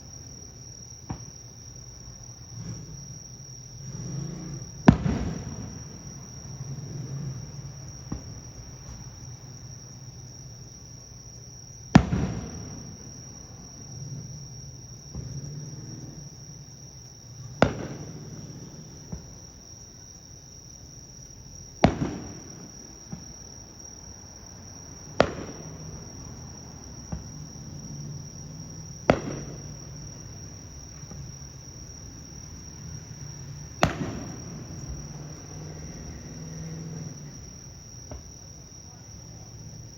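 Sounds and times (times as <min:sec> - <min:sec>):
insects trilling: 0:00.0 - 0:39.9
faint firework pops: 0:01.0 - 0:01.5, 0:04.8 - 0:07.4, 0:08.0 - 0:09.2, 0:11.8 - 0:13.4, 0:15.1 - 0:15.4, 0:17.0 - 0:19.6, 0:21.2 - 0:23.6, 0:25.1 - 0:26.2, 0:27.1 - 0:27.5, 0:29.0 - 0:30.2, 0:33.8 - 0:35.7, 0:37.3 - 0:38.4
firework shells bursting: 0:04.6 - 0:09.1, 0:11.8 - 0:13.4, 0:17.5 - 0:19.4, 0:21.8 - 0:23.3, 0:25.2 - 0:26.0, 0:29.0 - 0:30.2, 0:33.7 - 0:35.0.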